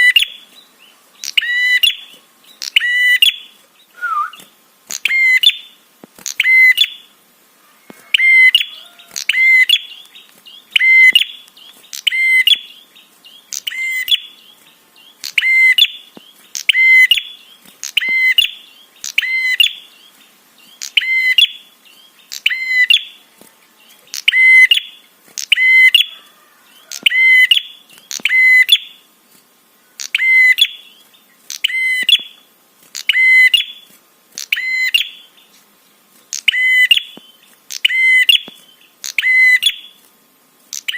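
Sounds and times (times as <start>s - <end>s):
bird call bursts of sharp notes: 1.2s - 7.1s, 8.1s - 19.9s, 30.0s - 32.4s, 33.0s - 35.4s, 36.3s - 40.0s.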